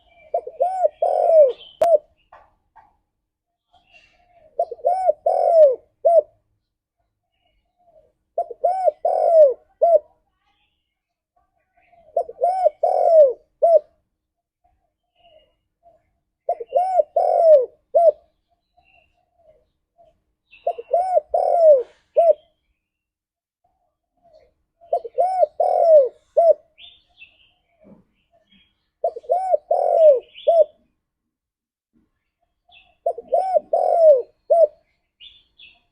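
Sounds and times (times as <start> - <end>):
dove cooing: 0.0 - 2.1, 4.0 - 6.4, 7.9 - 10.1, 12.0 - 14.0, 16.4 - 19.6, 20.5 - 22.5, 24.3 - 27.0, 29.0 - 30.9, 32.7 - 35.3.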